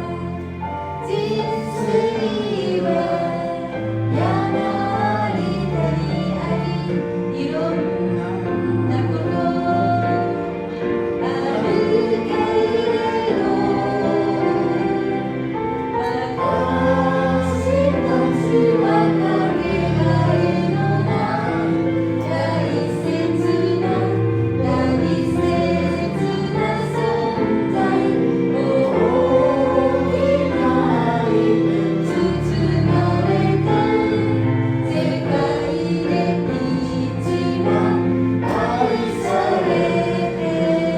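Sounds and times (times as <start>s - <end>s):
group singing worship song: 0.0s - 40.9s
instrumental accompaniment: 0.0s - 40.9s.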